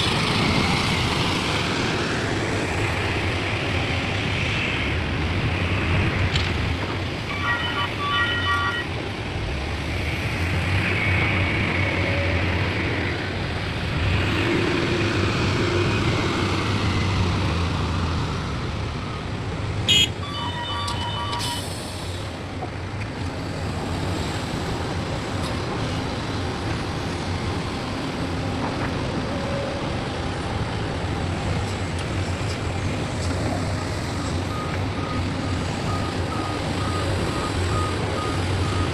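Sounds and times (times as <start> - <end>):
diesel engines running: 0.0 - 38.9
electronic beeping: 20.2 - 21.6.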